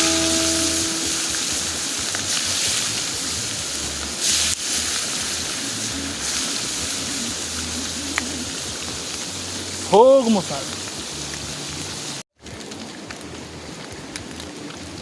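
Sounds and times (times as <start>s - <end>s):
plucked guitar note: 0.0s - 2.1s
hiss of water: 0.0s - 12.2s.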